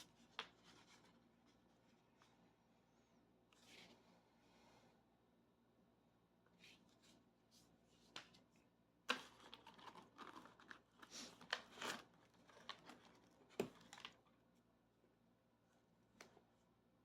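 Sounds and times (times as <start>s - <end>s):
wrapping paper crinkling: 9.3s - 14.2s.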